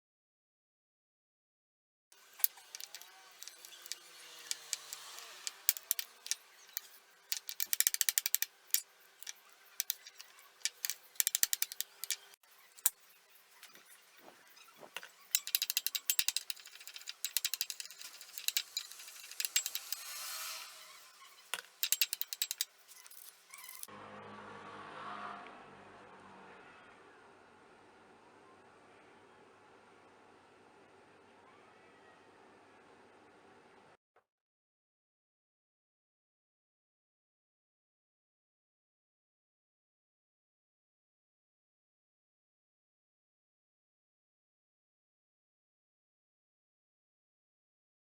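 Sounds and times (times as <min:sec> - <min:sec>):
rapid mechanical clicking: 0:02.4 - 0:23.9.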